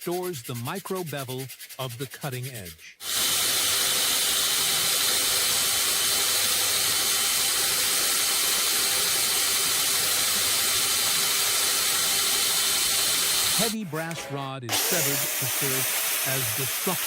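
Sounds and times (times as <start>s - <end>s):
belt grinder hissing on knife: 2.4s - 13.8s, 14.7s - 17.0s.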